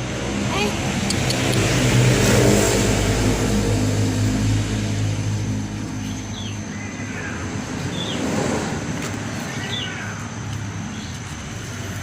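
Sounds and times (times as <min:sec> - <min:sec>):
vehicle engine passing: 0:00.0 - 0:10.2
bird chirps: 0:05.9 - 0:08.3, 0:09.3 - 0:10.3.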